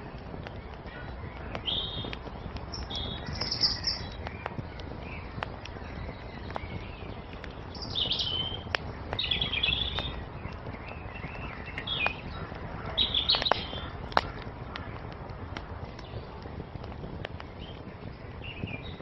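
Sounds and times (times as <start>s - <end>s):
songbirds twittering: 0.0s - 19.0s
wood fire crackling: 0.0s - 19.0s.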